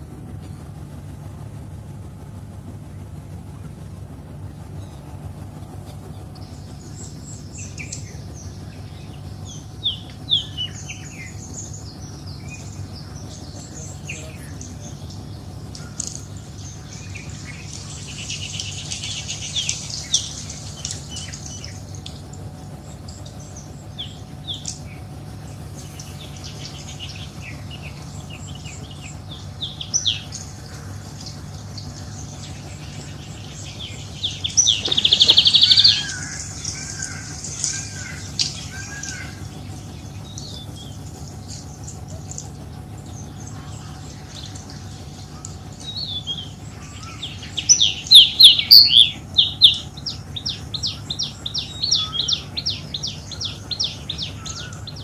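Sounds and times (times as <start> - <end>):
steady low hum: 0.0 - 55.0
high bird calls: 6.0 - 55.0
harsh rasping bird call: 34.5 - 39.5.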